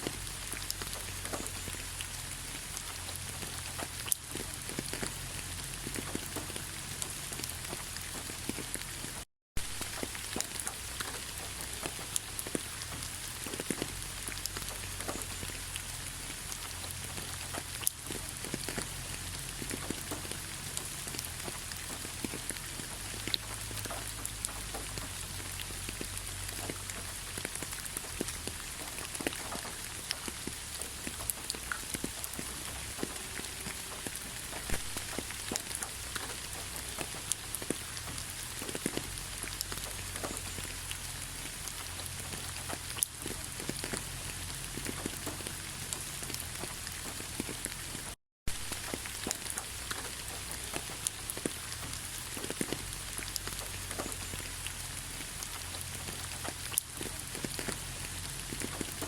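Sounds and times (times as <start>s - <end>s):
rain drops ticking: 0.0s - 59.0s
rain hiss: 0.0s - 59.0s.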